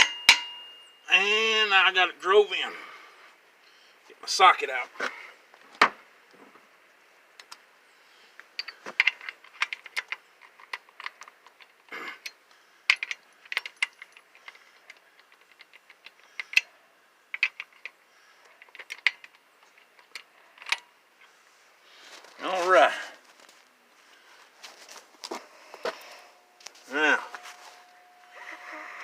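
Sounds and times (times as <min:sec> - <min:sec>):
metal hand tools clinking: 0:00.0 - 0:01.0.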